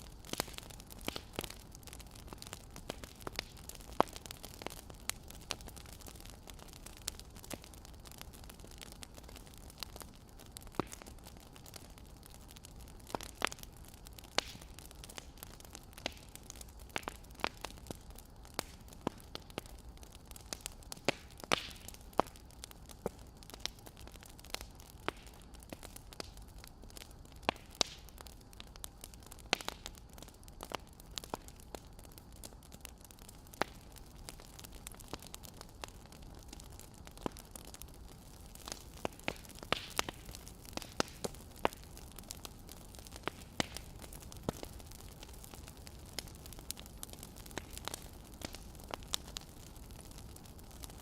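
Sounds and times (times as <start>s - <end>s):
faint steady hiss: 0.0s - 51.0s
wood fire crackling: 0.0s - 51.0s.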